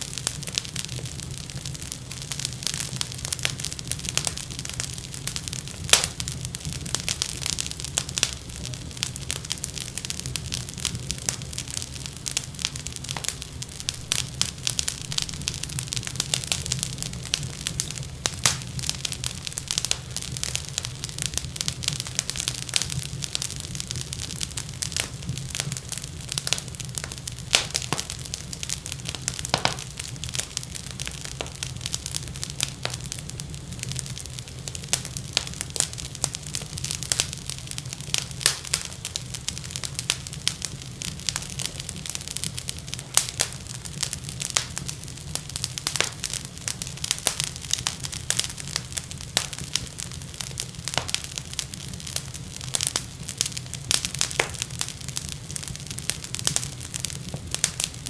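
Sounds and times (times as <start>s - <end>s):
wood fire crackling: 0.0s - 58.0s
low rumble: 13.2s - 23.5s.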